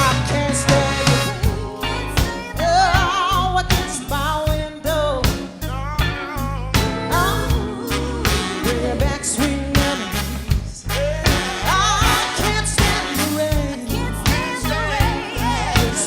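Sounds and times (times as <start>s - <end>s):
woman singing: 0.0s - 4.5s, 6.8s - 10.6s, 11.7s - 16.0s
drum and bass groove: 0.0s - 16.0s.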